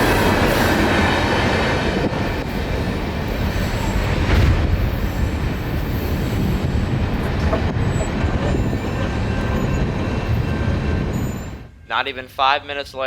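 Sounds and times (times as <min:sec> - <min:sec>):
freight train rumbling past: 0:00.0 - 0:13.0
wheel squeal: 0:04.8 - 0:11.7.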